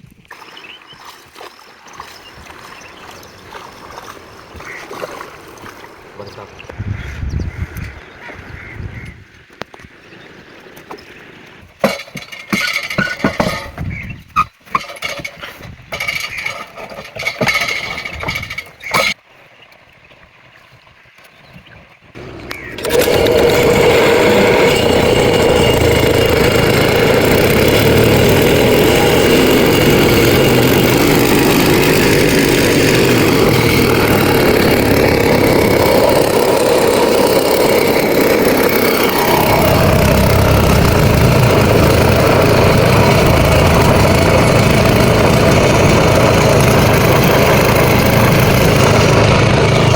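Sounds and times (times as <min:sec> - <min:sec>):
small engine starting and running: 0:11.8 - 0:13.8, 0:14.7 - 0:19.2, 0:22.2 - 0:49.9.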